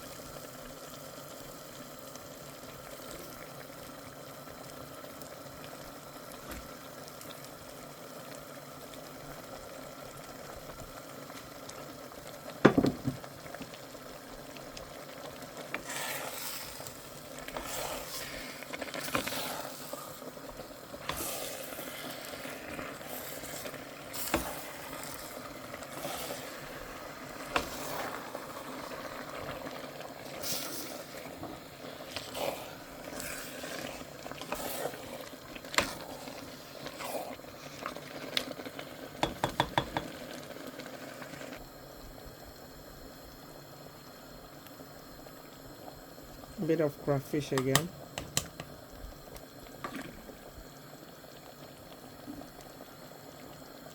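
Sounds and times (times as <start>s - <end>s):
soup simmering hiss: 0.0s - 53.9s
utensil stirring against pot: 14.6s - 40.3s.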